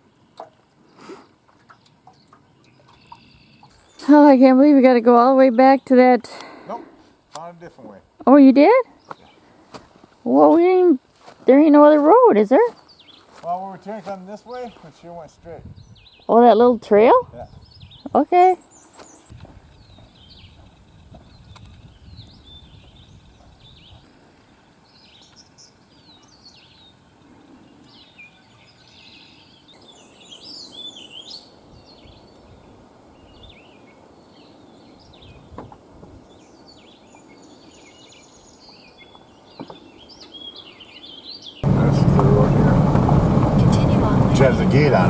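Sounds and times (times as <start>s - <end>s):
songbirds singing and chirping: 1.7s - 4.1s, 8.9s - 9.6s, 12.4s - 45.0s
faint low rumble: 41.6s - 45.0s.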